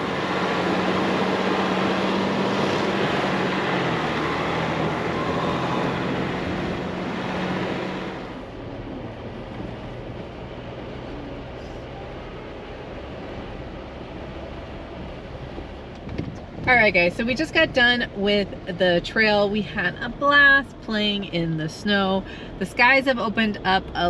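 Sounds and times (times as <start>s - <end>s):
engine hum: 0.0s - 24.0s
wind noise: 13.2s - 19.0s.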